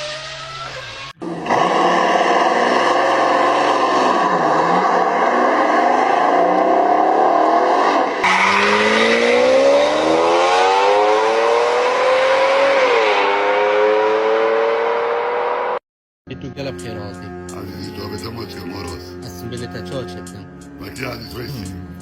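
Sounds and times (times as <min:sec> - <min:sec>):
car engine accelerating hard: 0:00.0 - 0:15.8.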